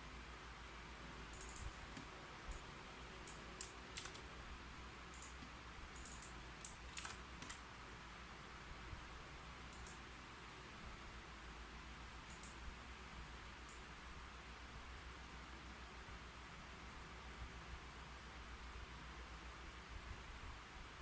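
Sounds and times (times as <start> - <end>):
keyboard key clicks: 3.3 - 4.2, 5.2 - 7.6.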